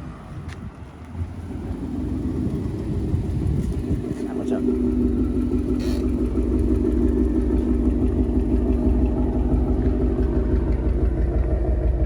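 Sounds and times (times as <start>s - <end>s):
car engine running: 1.0s - 12.0s.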